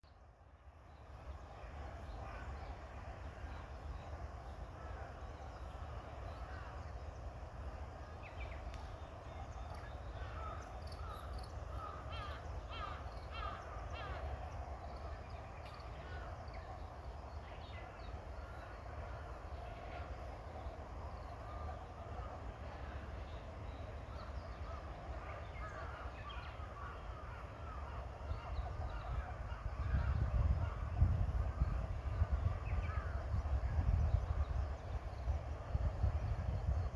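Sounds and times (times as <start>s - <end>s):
birds chirping: 8.2s - 18.7s.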